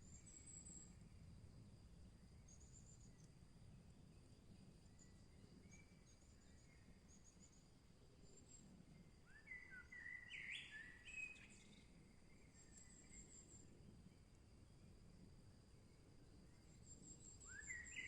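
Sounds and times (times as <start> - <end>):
bird song phrase: 9.3 - 11.9, 17.5 - 18.0.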